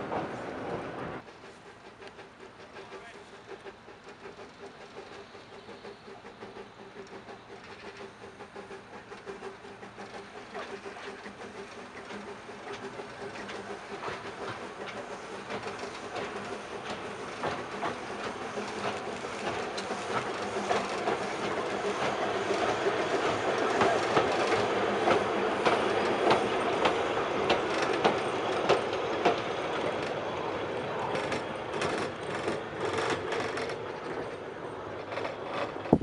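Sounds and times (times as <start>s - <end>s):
train rolling across bridge: 0.0s - 36.0s
wheels clicking over rail joints: 0.0s - 36.0s.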